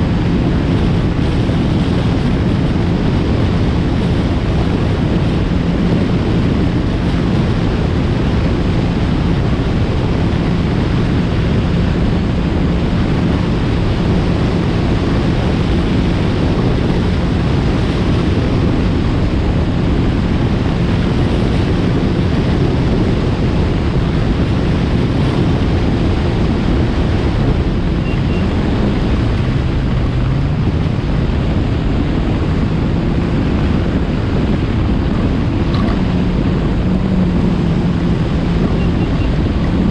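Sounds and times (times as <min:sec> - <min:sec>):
watercraft engine drone: 0:00.0 - 0:39.9
wind rush on microphone: 0:00.0 - 0:39.9.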